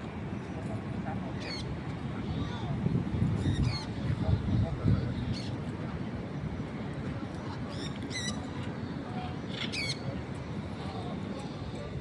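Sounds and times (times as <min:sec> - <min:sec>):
parrot squeaky calls: 0:03.4 - 0:03.9, 0:09.5 - 0:10.0.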